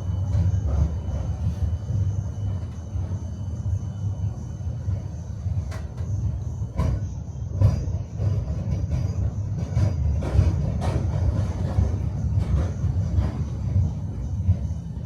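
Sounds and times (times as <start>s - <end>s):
tram rumbling along rails: 0.0s - 15.0s
wheels clacking over rail joints: 5.6s - 14.8s.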